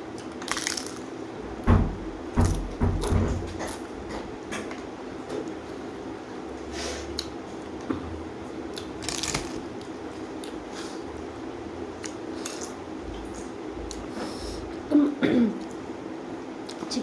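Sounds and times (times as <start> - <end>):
steady low hum: 0.0 - 17.0
person chewing with crunches: 12.0 - 14.1.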